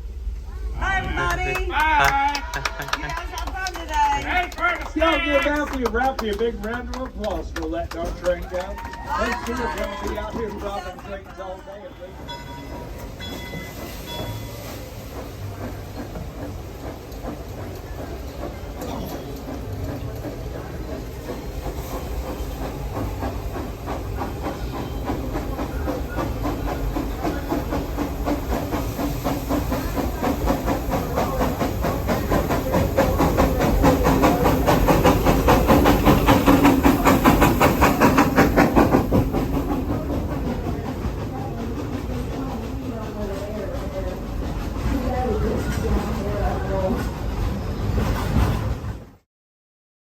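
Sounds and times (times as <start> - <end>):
steam locomotive chuffing: 0.0 - 49.2
steam hissing: 11.8 - 48.8.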